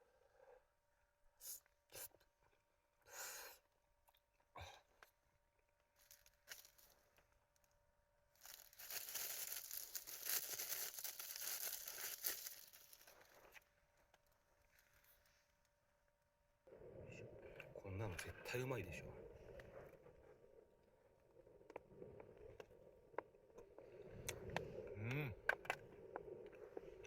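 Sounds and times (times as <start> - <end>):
packaging rustling and tearing: 8.4 - 13.3.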